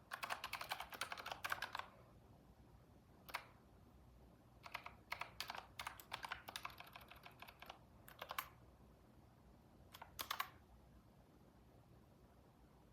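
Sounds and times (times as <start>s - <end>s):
typing on computer keyboard: 0.0s - 2.0s, 3.2s - 3.6s, 4.6s - 8.6s, 9.9s - 10.6s.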